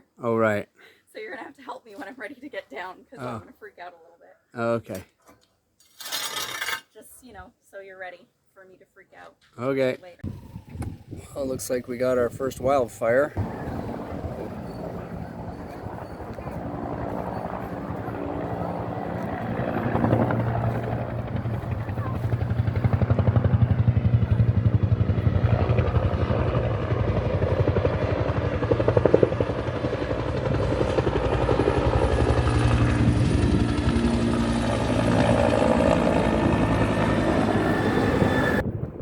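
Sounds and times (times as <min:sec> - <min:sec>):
helicopter rotor chopping: 0:10.2 - 0:39.0.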